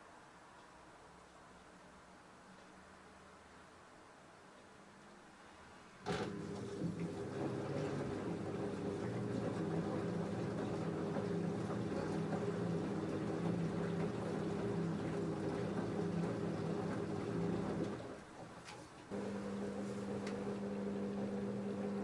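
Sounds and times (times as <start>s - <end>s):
washing machine humming: 6.0s - 22.0s
washing machine click: 6.1s - 22.0s.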